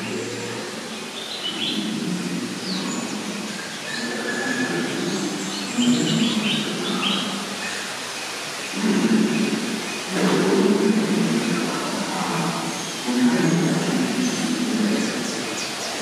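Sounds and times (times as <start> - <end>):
birds chirping and calling: 0.0 - 16.0
low background noise: 0.0 - 16.0.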